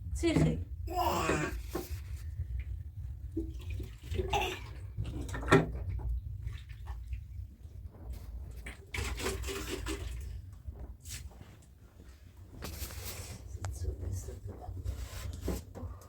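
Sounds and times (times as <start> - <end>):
water sloshing and splashing: 0.2 - 11.4.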